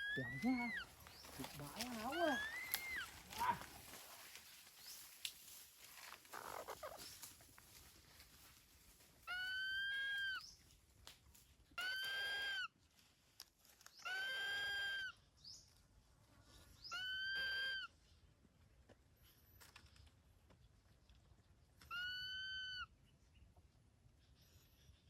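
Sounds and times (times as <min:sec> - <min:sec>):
bird screeching: 0:00.0 - 0:00.9, 0:01.9 - 0:03.6, 0:09.3 - 0:10.4, 0:11.8 - 0:12.7, 0:14.0 - 0:15.2, 0:16.9 - 0:17.9, 0:21.9 - 0:22.9.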